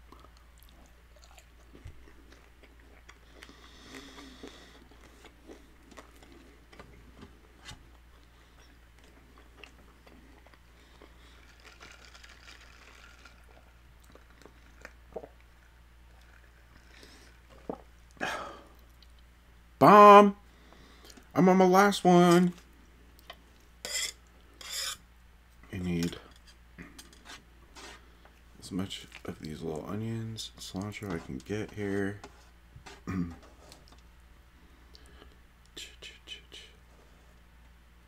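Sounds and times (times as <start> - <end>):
chewing crunchy taco: 0.0 - 19.3.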